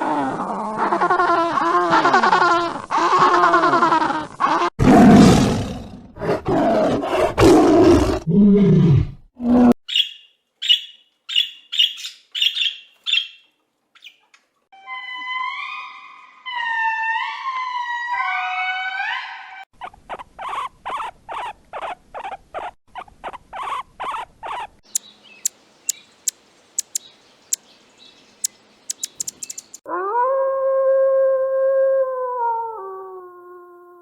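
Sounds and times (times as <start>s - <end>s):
rhythmic animal calls: 24.9s - 27.7s, 28.4s - 29.8s
sharp clicks: 24.9s - 27.7s, 28.4s - 29.8s
gliding pitched animal calls: 26.8s - 27.0s, 28.9s - 29.8s.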